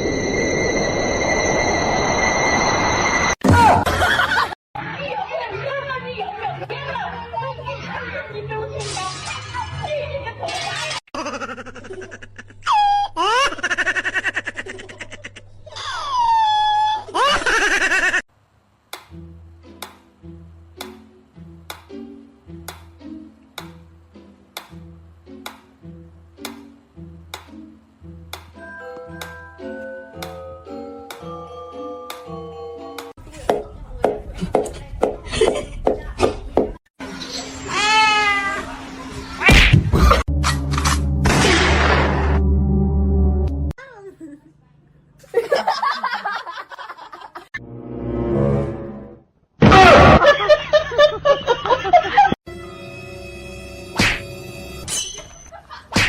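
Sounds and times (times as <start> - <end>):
long squeals: 0.0 - 3.4
high-pitched giggling: 10.8 - 18.2.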